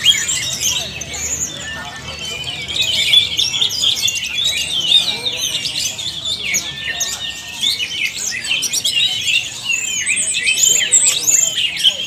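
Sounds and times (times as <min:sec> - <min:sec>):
birds singing: 0:00.0 - 0:12.0.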